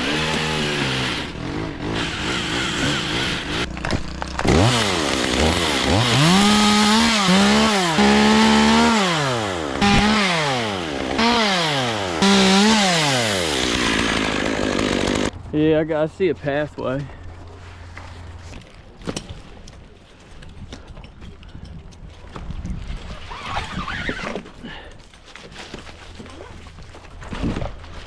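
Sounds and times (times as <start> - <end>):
chainsaw engine revving: 0.0 - 15.3.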